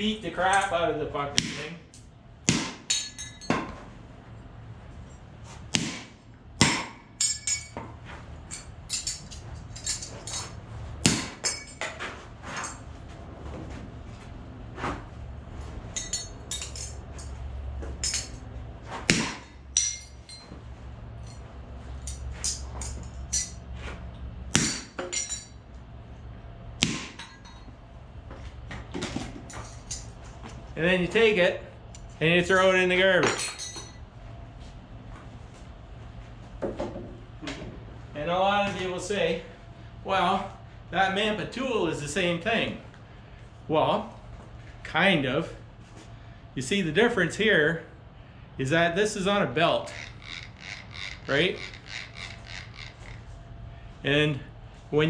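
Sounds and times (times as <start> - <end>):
metal chain clinking and rattling: 2.9 - 3.6, 7.2 - 7.8, 8.4 - 10.6, 11.4 - 12.9, 15.9 - 17.4, 18.0 - 18.5, 19.7 - 20.6, 21.2 - 23.7, 24.7 - 25.6, 27.2 - 27.7, 29.5 - 30.2, 33.3 - 34.0.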